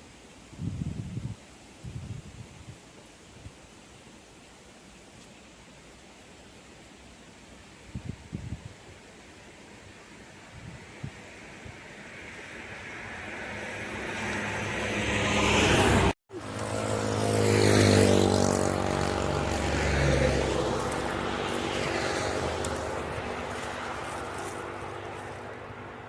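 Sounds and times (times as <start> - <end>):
motor vehicle passing: 11.4 - 26.0.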